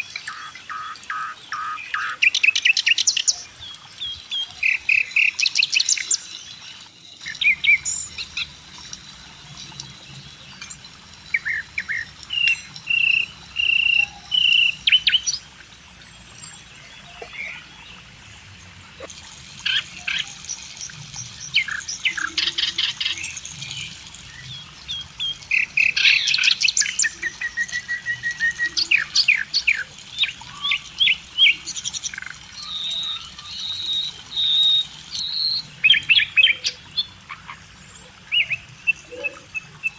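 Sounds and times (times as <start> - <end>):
songbirds chirping and singing: 0.1 - 15.5.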